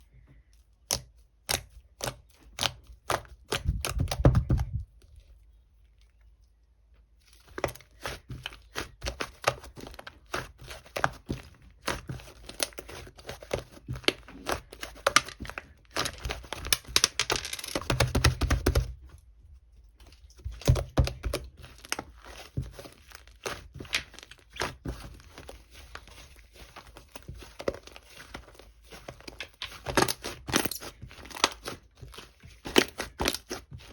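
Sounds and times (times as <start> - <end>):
slime squished by hand: 20.0 - 33.9.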